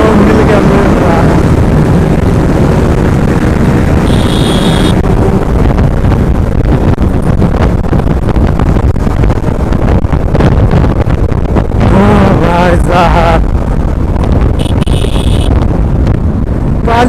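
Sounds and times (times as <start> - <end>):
motorcycle engine running hard: 0.0 - 17.0
wind buffeting microphone: 0.0 - 17.0
brief high tone: 4.0 - 5.0, 14.6 - 15.5.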